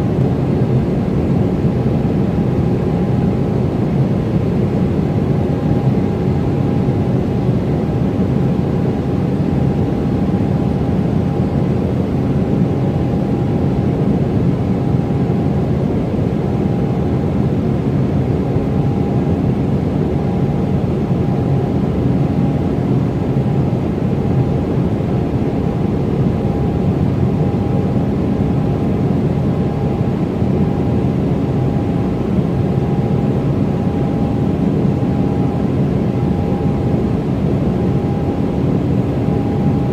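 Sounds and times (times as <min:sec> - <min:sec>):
jet engine roar: 0:00.0 - 0:39.9
steady whine: 0:17.2 - 0:39.9.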